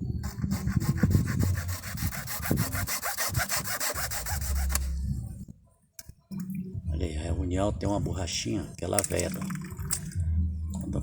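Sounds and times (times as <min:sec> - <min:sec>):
hand tool rasping plastic pipe: 0:00.0 - 0:04.9.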